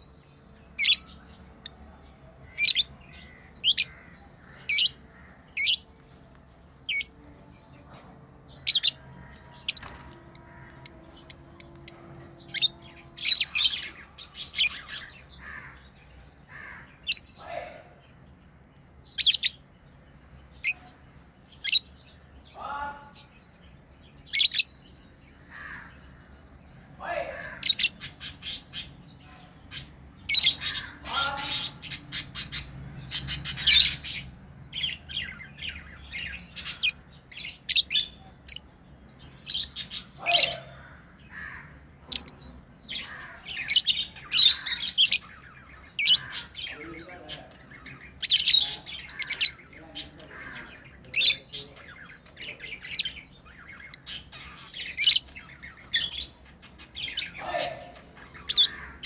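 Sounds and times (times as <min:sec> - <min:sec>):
lovebirds chirping and squawking: 0:00.0 - 0:59.0.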